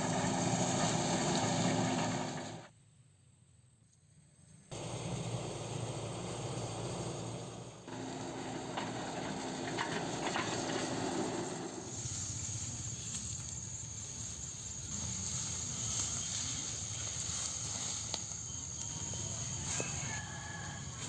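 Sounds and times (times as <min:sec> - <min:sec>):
small motor running: 0:04.7 - 0:12.0
steady high buzz: 0:04.7 - 0:20.2.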